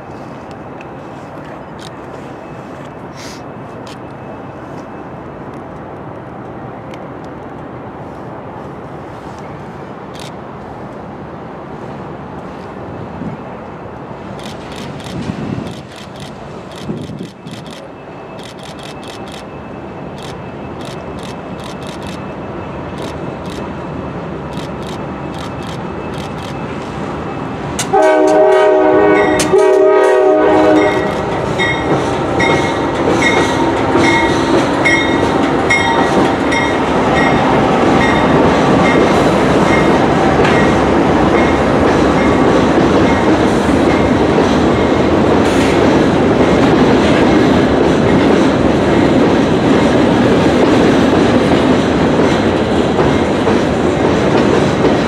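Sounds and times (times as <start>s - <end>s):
train wheels clickety-clack: 14.3s - 23.7s, 24.4s - 26.9s, 27.7s - 55.0s
train horn blasts: 27.8s - 31.8s.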